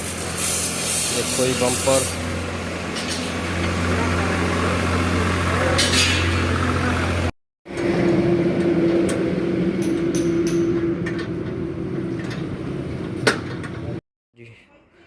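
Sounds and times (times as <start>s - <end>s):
tractor engine idling: 1.2s - 7.3s.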